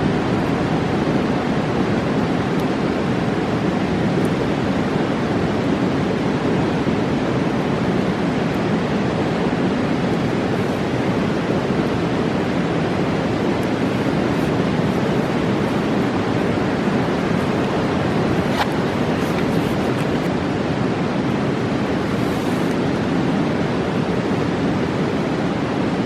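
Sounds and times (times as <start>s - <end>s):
river rushing: 0.0s - 26.0s.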